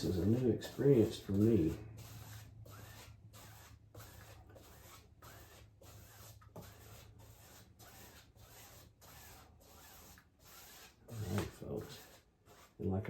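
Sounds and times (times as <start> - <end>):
brush scrubbing on canvas: 0.0 - 13.0.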